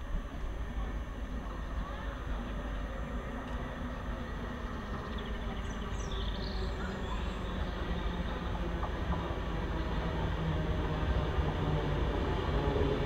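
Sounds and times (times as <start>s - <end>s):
electric train rumble and hum: 0.0s - 13.0s.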